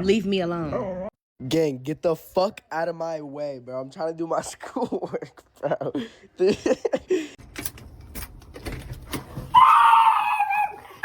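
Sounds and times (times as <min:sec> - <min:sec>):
dog crying high-pitched: 0:09.5 - 0:11.0.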